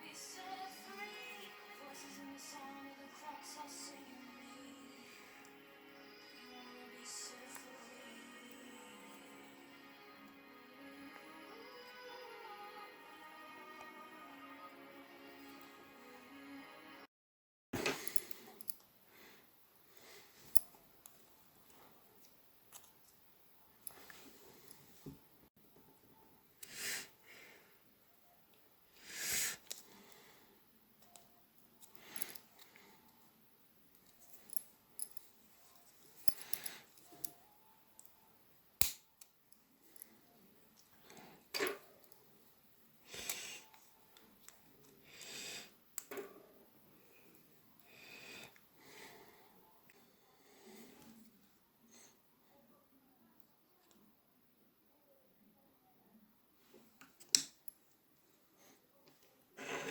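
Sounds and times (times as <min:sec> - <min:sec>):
background music: 0:00.0 - 0:17.1.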